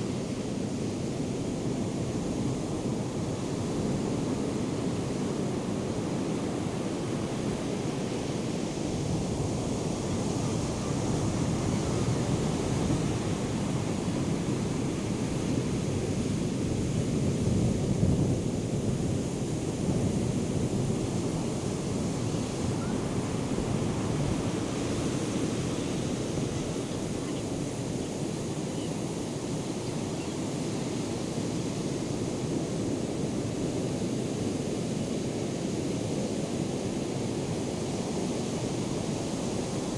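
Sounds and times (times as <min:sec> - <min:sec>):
surf breaking and washing in: 0:18.4 - 0:29.9.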